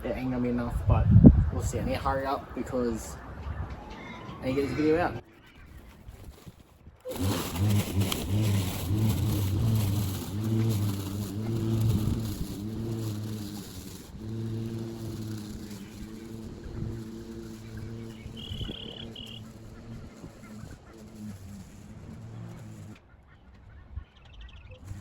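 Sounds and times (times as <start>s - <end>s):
lawn mower cutting grass: 4.4s - 23.2s.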